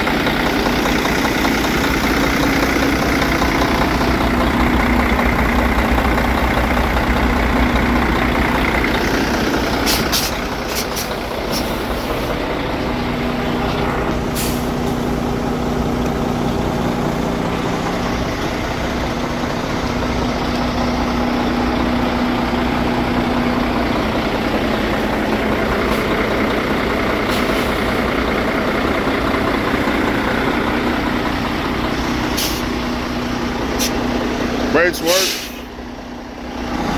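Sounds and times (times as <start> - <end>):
diesel truck engine idling: 0.0 - 36.9
air brake hisses: 9.8 - 12.4, 14.3 - 15.0, 32.4 - 32.7, 33.8 - 34.0, 35.1 - 35.7.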